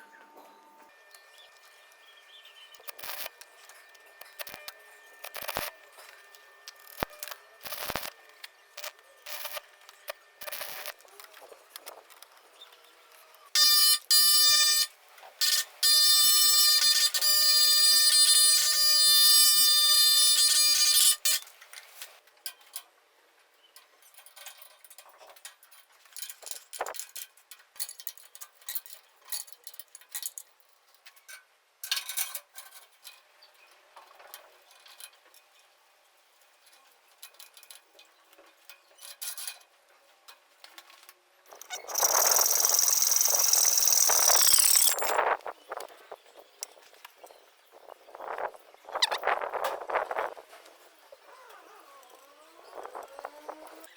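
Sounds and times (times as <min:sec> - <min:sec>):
electric motor whining: 0:41.7 - 0:45.4.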